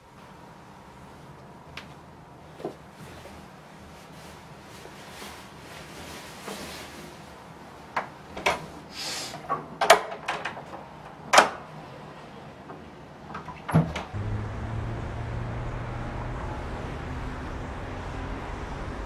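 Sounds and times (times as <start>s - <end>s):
clothing rustling: 2.5s - 7.6s
steady low hum: 14.2s - 19.0s.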